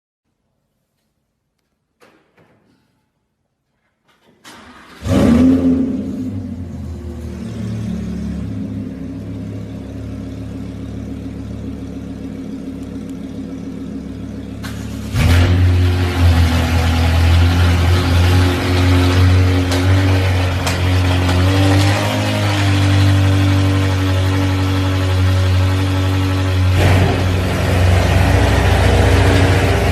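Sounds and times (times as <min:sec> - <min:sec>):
car engine starting and idling: 0:04.1 - 0:29.9.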